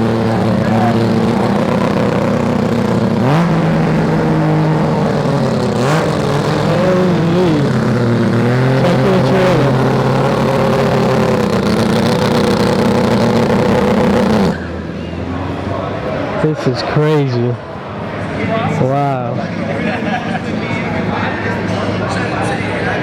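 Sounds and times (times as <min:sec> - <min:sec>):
sharp exhaust cracks: 0:00.0 - 0:14.7
car engine revving: 0:00.0 - 0:15.6.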